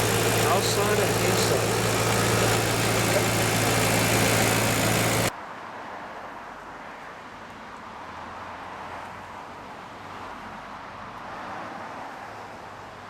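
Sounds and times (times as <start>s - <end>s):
car engine idling: 0.0s - 5.3s
distant hum: 0.0s - 5.3s.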